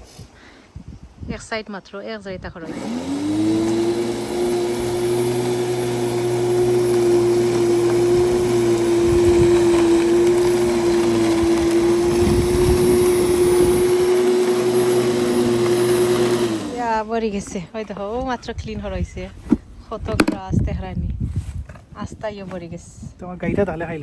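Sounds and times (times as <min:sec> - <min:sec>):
electric lawn mower whine: 0:02.6 - 0:17.0, 0:20.1 - 0:20.4.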